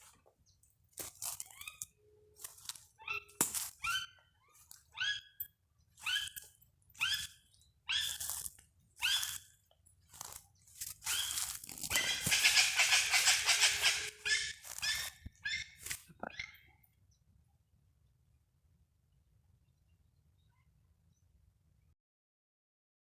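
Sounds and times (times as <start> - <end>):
birds giving harsh raucous calls: 2.7 - 9.4, 11.0 - 16.7.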